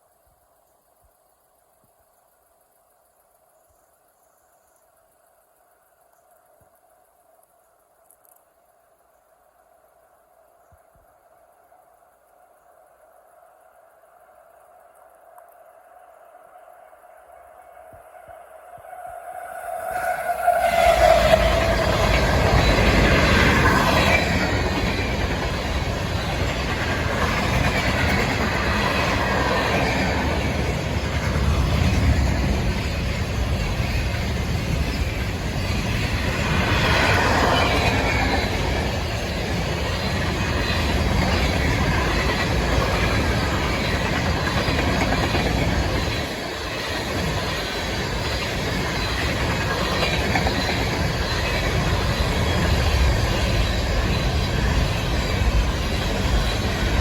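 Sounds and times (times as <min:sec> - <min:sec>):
train rumbling on rails: 0:15.9 - 0:57.0
wheel squeal: 0:18.7 - 0:57.0
wheels clickety-clack: 0:20.0 - 0:57.0.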